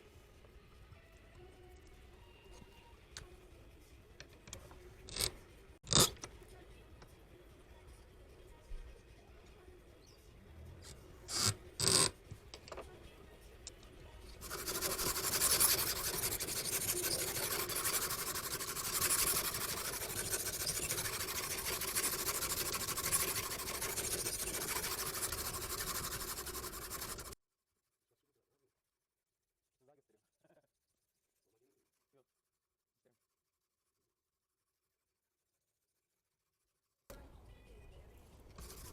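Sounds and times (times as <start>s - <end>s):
knife rasping on sharpening stone: 11.3s - 12.1s, 14.4s - 27.4s.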